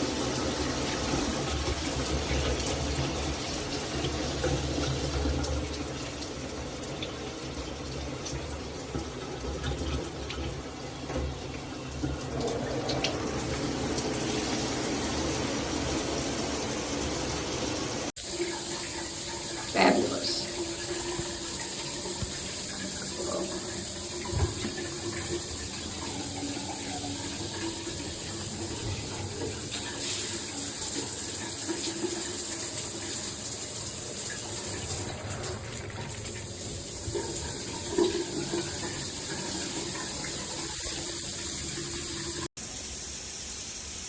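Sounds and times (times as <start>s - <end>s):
shower water spraying: 11.6s - 44.0s.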